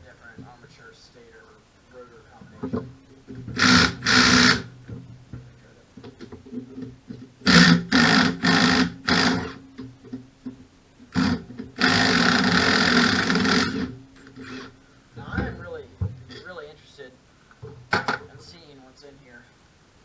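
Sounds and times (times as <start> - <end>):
power driver spinning: 3.5 - 4.7, 11.1 - 14.8.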